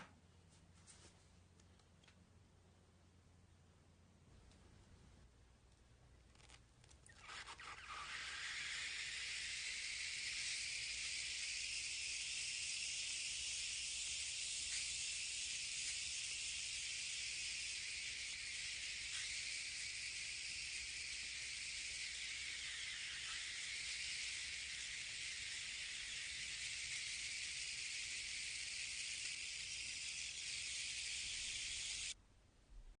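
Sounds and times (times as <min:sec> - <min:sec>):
steam hissing from jets: 0:08.1 - 0:32.2.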